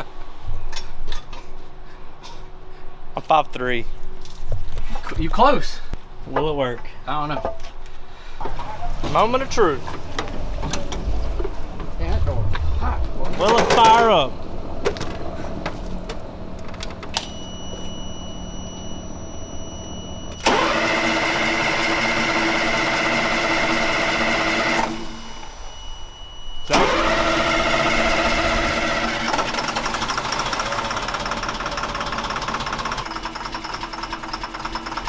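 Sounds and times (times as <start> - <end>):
diesel engine starting: 8.4 - 35.0.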